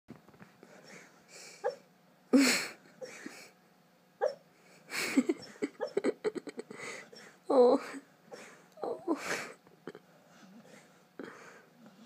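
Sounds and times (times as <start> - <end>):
huffing breaths: 6.6 - 9.6, 10.2 - 12.0.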